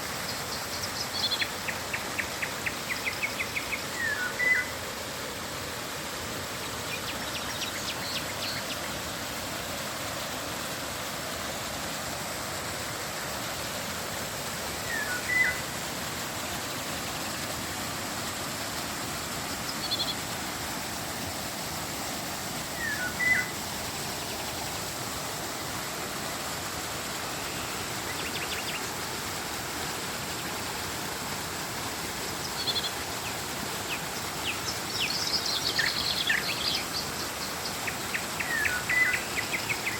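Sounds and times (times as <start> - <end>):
river water rushing: 0.0 - 39.9
birds chirping: 14.9 - 15.6, 22.8 - 23.5.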